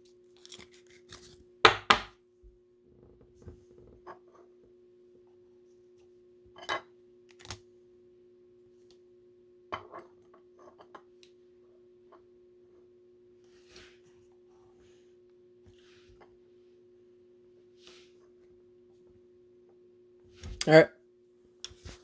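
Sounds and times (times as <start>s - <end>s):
cards and wrappers rustling: 0.2s - 1.4s.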